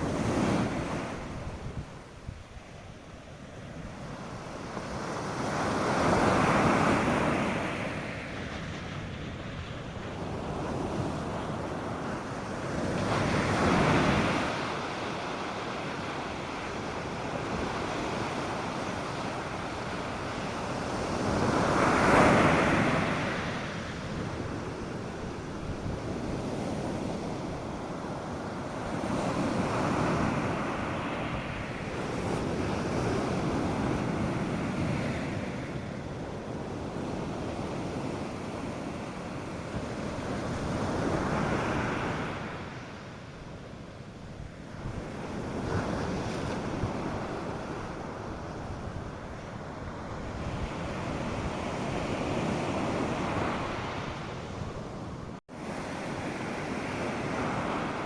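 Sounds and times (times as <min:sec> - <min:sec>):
wind on microphone: 0:00.0 - 0:58.0
surf breaking on beach: 0:04.2 - 0:43.0.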